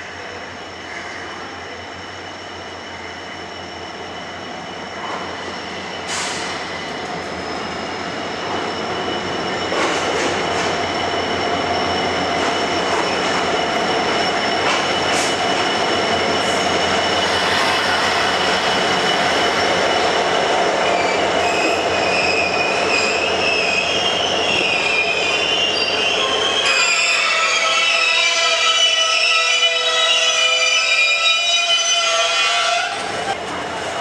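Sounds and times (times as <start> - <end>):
high whine of train wheels: 0.0 - 34.0
train running on rails: 0.0 - 34.0.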